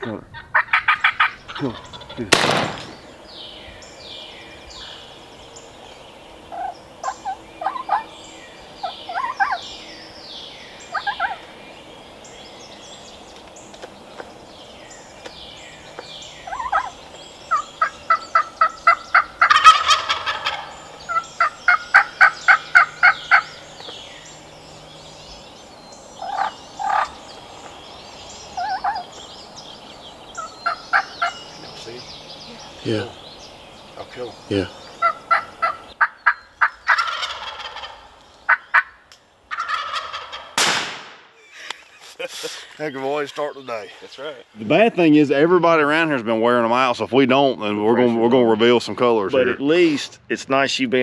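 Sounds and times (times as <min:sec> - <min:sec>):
fast turkey yelping: 0:00.0 - 0:02.3, 0:06.5 - 0:08.2, 0:08.8 - 0:09.8, 0:10.9 - 0:11.4, 0:16.4 - 0:23.7, 0:26.2 - 0:27.3, 0:28.5 - 0:29.2, 0:30.3 - 0:31.6, 0:34.9 - 0:40.6
turkeys gobbling: 0:00.0 - 0:03.5, 0:04.1 - 0:11.6, 0:15.2 - 0:24.7, 0:25.3 - 0:41.0
loud rough burst: 0:02.2 - 0:03.1.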